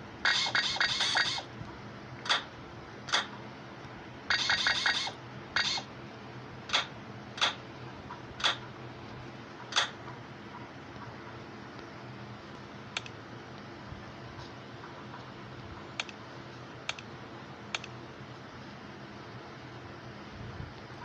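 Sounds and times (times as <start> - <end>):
faint steady hum: 0.0 - 21.0
sharp mechanical clicks: 0.2 - 1.5, 2.2 - 2.5, 3.1 - 3.4, 4.3 - 5.9, 6.7 - 7.6, 8.4 - 8.6, 9.7 - 10.0, 12.9 - 13.2, 16.0 - 16.2, 16.8 - 17.1, 17.7 - 18.0.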